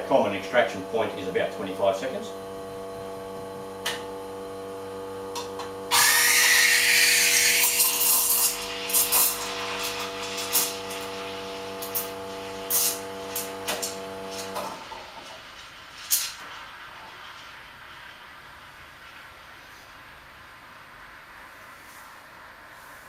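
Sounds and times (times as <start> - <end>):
espresso machine pump humming: 0.0 - 15.5
steam wand hissing: 5.9 - 9.7.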